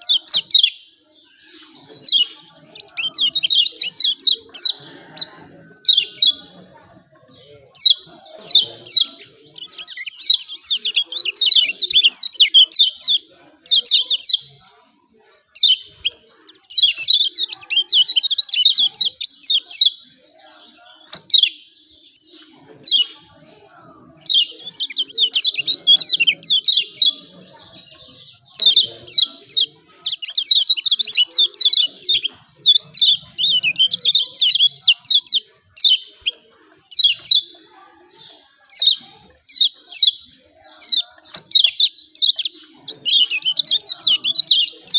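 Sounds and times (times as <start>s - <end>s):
bird high sharp chirps: 0.0s - 6.6s, 7.8s - 14.6s, 24.1s - 44.9s.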